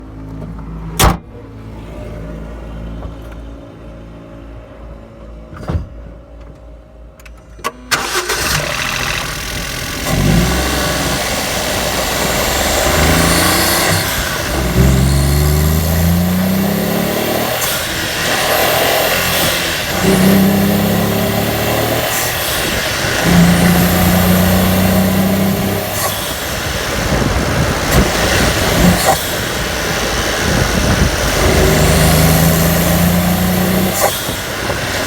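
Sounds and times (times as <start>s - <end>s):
small car engine revving: 7.7s - 35.0s
engine intake air noise: 7.9s - 35.0s.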